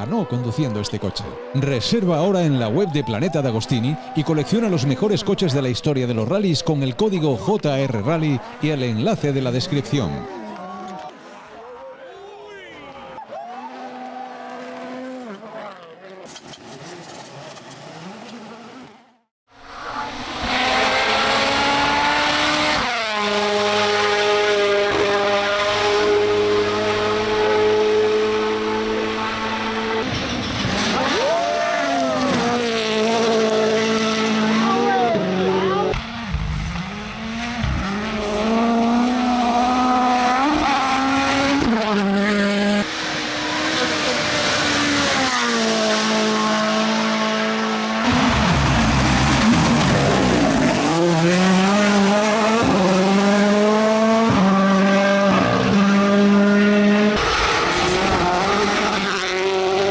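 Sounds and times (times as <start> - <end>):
rally car engine at high revs: 13.7 - 59.9.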